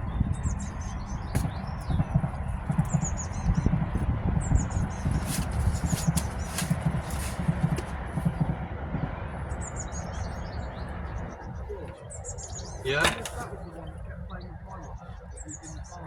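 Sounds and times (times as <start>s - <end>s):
small birds chirping: 0.0s - 8.6s, 9.5s - 16.0s
low thumping and rumbling: 0.0s - 9.8s.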